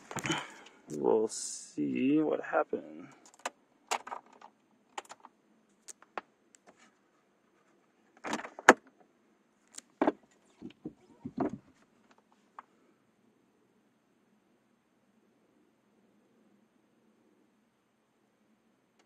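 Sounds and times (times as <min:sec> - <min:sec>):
clicks and knocks of keys: 0:03.2 - 0:06.7.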